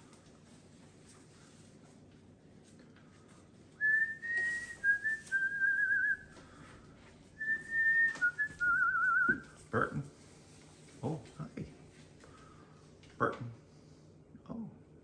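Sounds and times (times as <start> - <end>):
person whistling: 3.8 - 6.4, 7.4 - 9.5.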